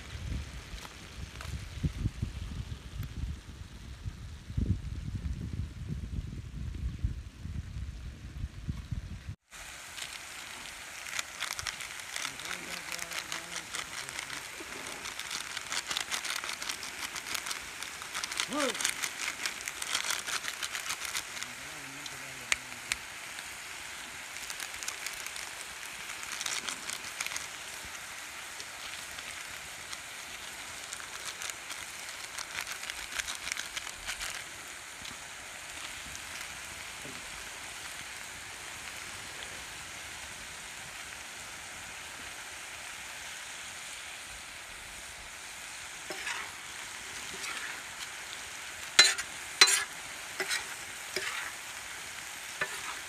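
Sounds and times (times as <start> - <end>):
chicken sizzling in oil: 0.0 - 5.6, 8.6 - 53.0
steel spoon scraping pan: 46.1 - 46.6, 47.2 - 47.9, 48.9 - 51.6, 52.6 - 53.0.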